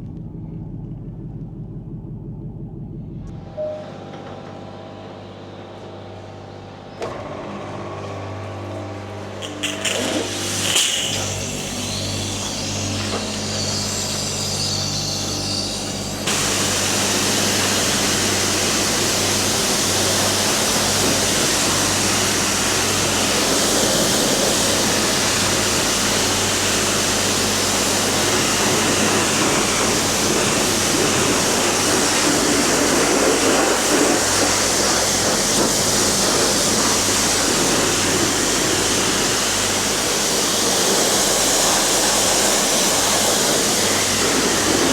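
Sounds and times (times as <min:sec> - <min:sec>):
low hum: 0:00.0 - 0:07.1
high-pressure water spray hissing: 0:09.4 - 0:44.9.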